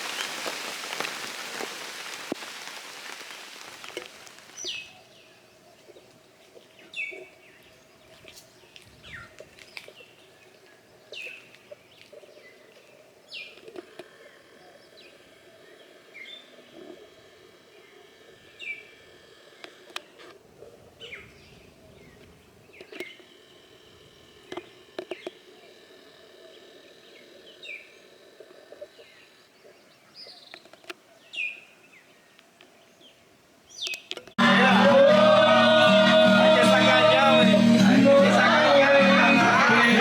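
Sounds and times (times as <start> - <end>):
birds chirping: 3.0 - 20.2, 26.4 - 40.0
loud latin music with singing: 34.4 - 40.0.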